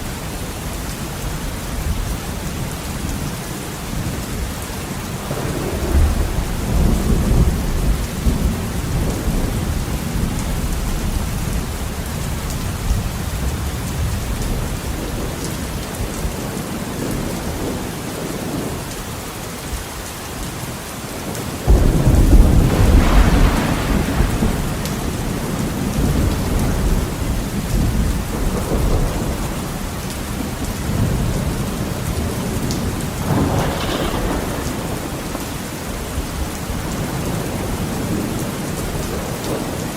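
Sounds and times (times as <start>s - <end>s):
rain pattering on a window: 0.2s - 39.9s
thunder rumbling: 4.0s - 18.8s, 21.3s - 39.9s
loud thunderclap: 5.2s - 11.2s, 21.7s - 29.6s, 30.4s - 39.9s.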